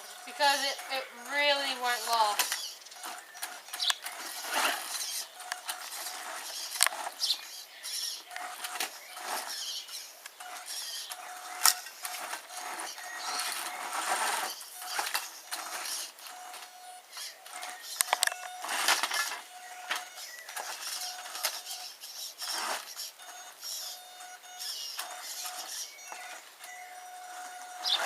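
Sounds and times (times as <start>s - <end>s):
toy truck motor whining: 0.0s - 28.0s
tyres and chassis knocking over rocks: 1.4s - 7.3s.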